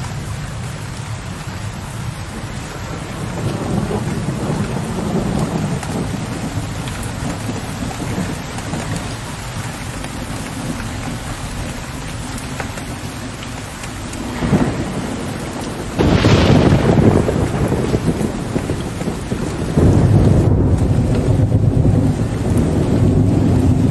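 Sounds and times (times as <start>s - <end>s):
low thunder rumble: 0.0s - 13.4s, 14.0s - 23.9s
steady rain: 0.0s - 23.9s
loud thunder crack: 2.7s - 8.4s, 14.2s - 23.9s.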